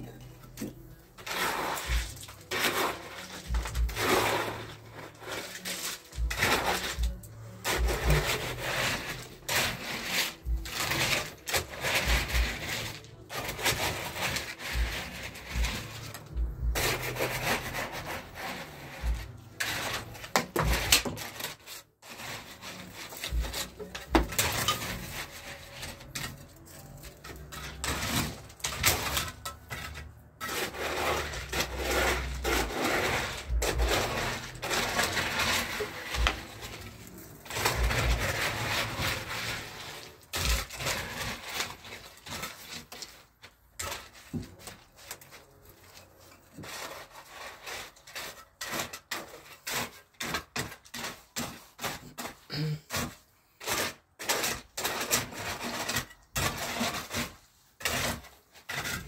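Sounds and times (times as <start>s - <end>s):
hand tools scraping mortar: 0.0s - 59.0s.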